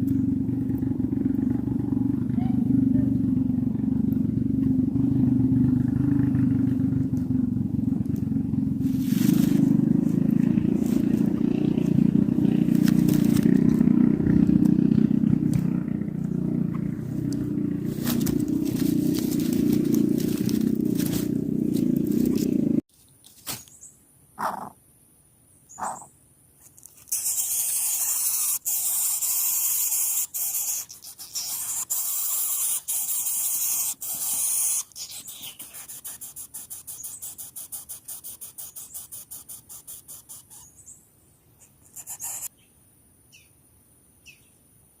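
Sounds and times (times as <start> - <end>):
bird nestling hissing: 27.0 - 40.7, 41.7 - 42.5.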